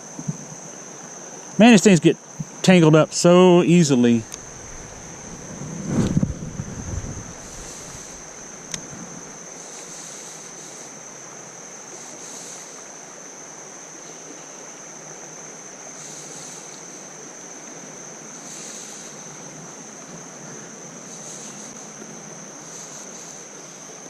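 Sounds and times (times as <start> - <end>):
creek water flowing: 0.7 - 24.0.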